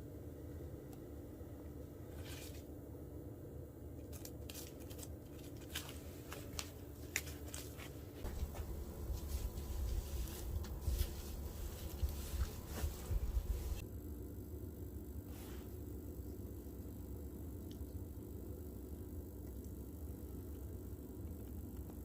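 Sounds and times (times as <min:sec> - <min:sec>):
low rumble: 0:08.2 - 0:13.8
wood fire crackling: 0:08.2 - 0:13.8.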